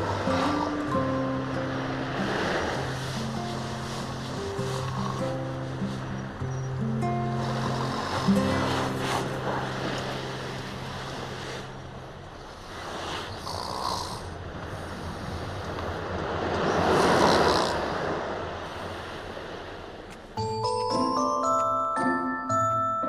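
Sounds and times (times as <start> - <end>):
soft background music: 0.0 - 13.3, 20.4 - 23.0
sea waves washing onto beach: 0.0 - 22.2.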